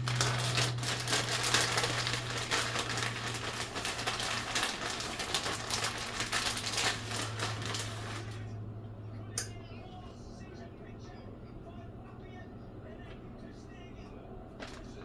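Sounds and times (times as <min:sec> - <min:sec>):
dense crackling and crinkling: 0:00.0 - 0:08.5, 0:14.6 - 0:15.0
steady low hum: 0:00.0 - 0:15.0.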